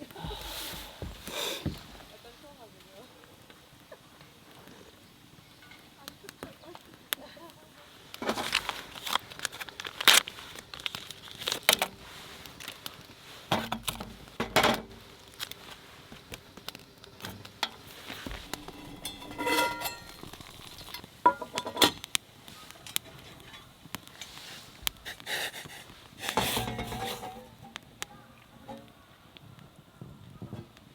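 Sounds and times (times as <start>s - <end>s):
packaging crinkling: 8.4s - 13.1s.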